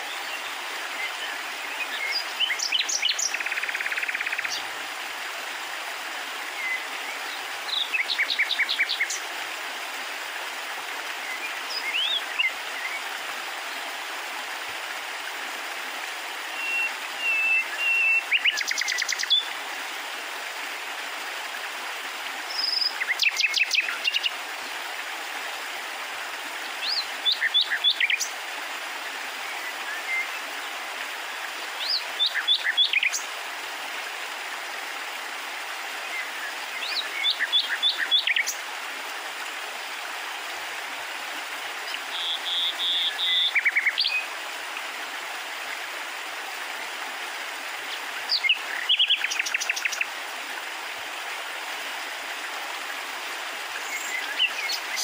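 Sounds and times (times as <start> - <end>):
small bird singing: 11.3 - 13.0, 36.2 - 38.6, 41.9 - 44.2.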